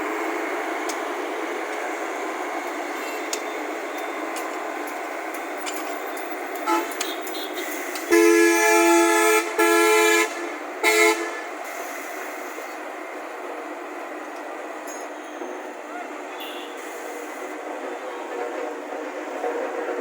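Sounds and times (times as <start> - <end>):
steady background noise: 0.0 - 20.0
vehicle horn honking: 6.6 - 11.5, 16.3 - 16.9.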